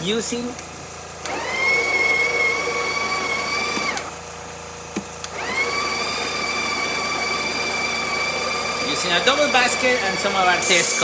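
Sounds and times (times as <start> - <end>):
grinder motor whining: 0.0 - 11.0.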